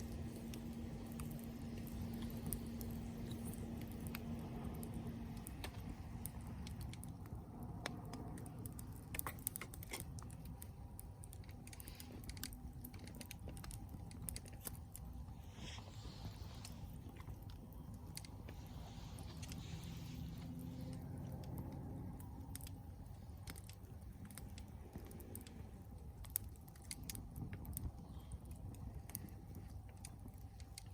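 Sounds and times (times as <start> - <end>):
campfire crackling and popping: 0.0 - 30.9
soft hiss: 13.9 - 26.2.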